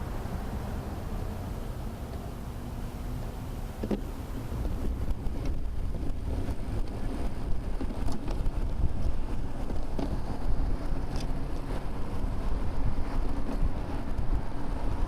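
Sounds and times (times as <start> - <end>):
road noise: 0.0 - 15.0
wind buffeting microphone: 3.9 - 15.0.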